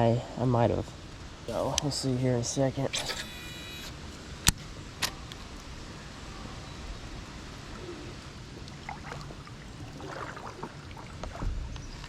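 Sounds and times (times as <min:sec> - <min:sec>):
faint background hiss: 0:00.0 - 0:12.0.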